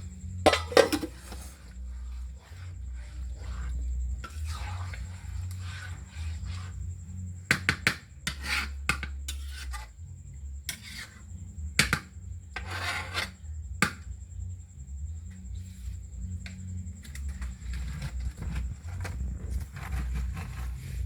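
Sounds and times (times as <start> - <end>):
utensil scraping on cookware: 0.0 - 10.0, 10.7 - 13.5, 17.0 - 21.0.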